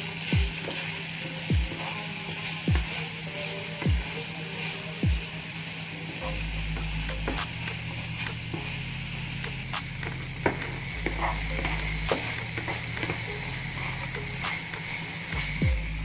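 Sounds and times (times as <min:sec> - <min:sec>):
vegetables sizzling in hot oil: 0:00.0 - 0:16.0
spatula scraping a pan: 0:09.4 - 0:15.0.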